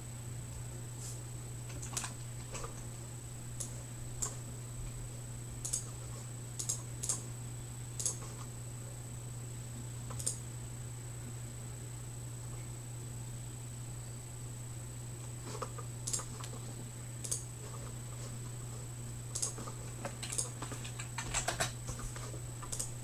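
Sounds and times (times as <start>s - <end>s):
low electrical hum: 0.0s - 23.0s
keyboard or mouse clicks: 5.6s - 5.9s, 8.0s - 8.2s, 16.0s - 16.5s, 17.2s - 17.4s, 19.3s - 19.6s, 22.6s - 22.9s.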